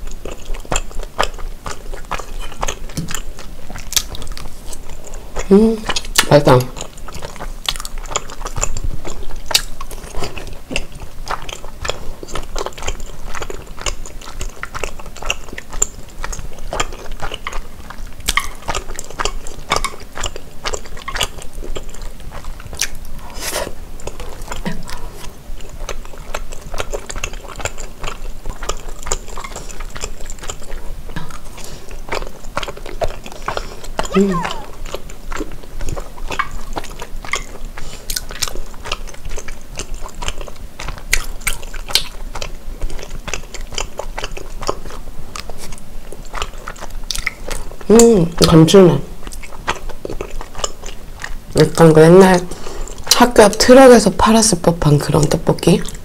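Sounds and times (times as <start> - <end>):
chewing with wet mouth sounds: 0.0 - 56.0
sticky mouth clicks: 32.2 - 48.6.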